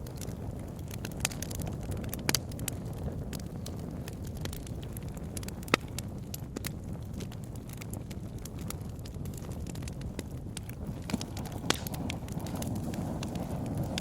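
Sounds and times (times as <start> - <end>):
wood bonfire crackling: 0.0 - 14.0
steady low rumble: 0.1 - 14.0
sharp pops and snaps: 3.6 - 14.0.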